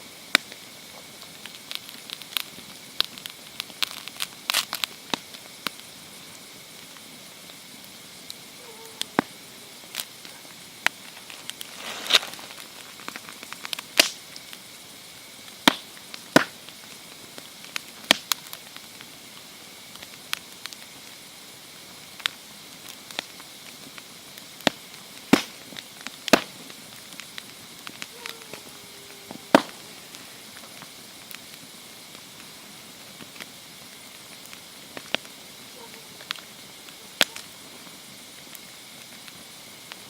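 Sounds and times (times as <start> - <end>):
campfire crackling: 0.0 - 40.0
hiss of fire: 0.0 - 40.0.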